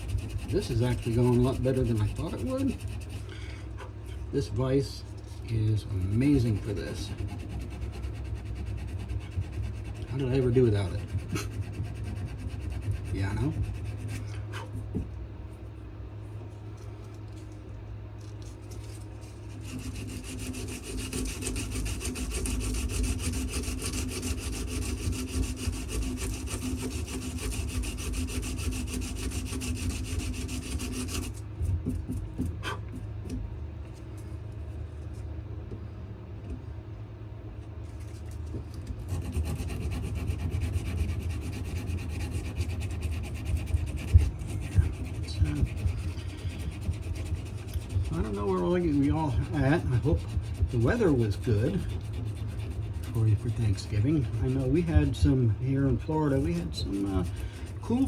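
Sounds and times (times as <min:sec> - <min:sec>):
sandpaper scrubbing wood: 0:00.0 - 0:03.3, 0:05.9 - 0:14.3, 0:18.8 - 0:31.4, 0:39.0 - 0:58.0.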